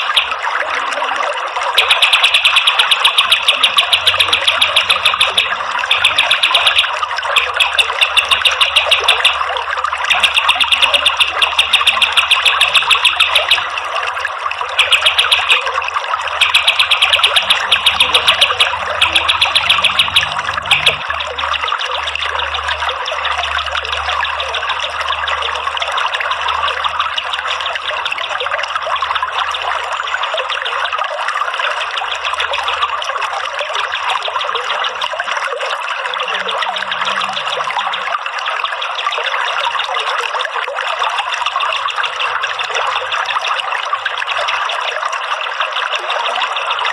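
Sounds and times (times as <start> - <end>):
water trickling: 0.0 - 46.9
songbird trilling: 1.8 - 13.8, 14.7 - 23.6, 36.3 - 38.0.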